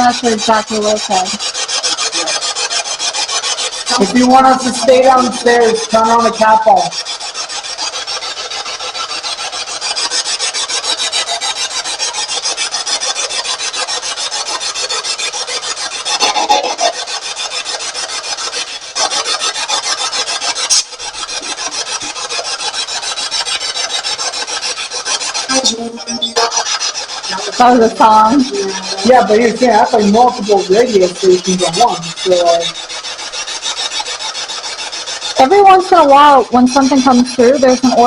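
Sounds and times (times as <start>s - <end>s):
radio broadcast fragments: 25.5s - 26.6s
stuttering radio static: 25.5s - 32.6s.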